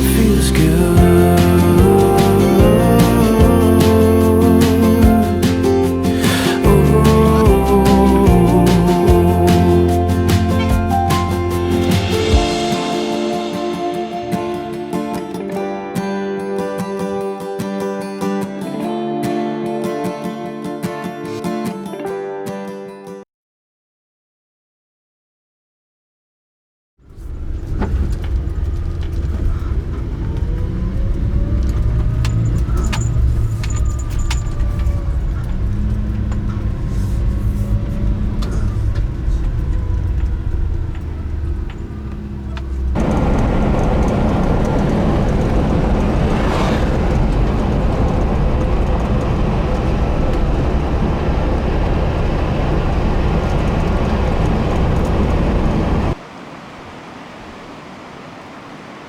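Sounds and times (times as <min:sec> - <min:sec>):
car engine and tyre rumble: 0:00.0 - 0:12.4, 0:27.0 - 0:56.3
whine gliding up and down: 0:29.0 - 0:56.2.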